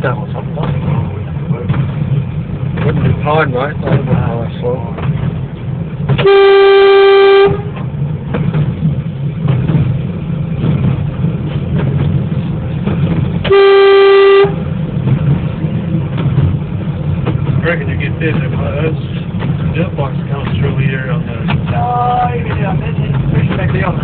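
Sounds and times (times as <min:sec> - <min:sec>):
diesel engine rumble: 0:00.0 - 0:24.0
locomotive horn blasts: 0:06.2 - 0:07.8, 0:13.4 - 0:14.7.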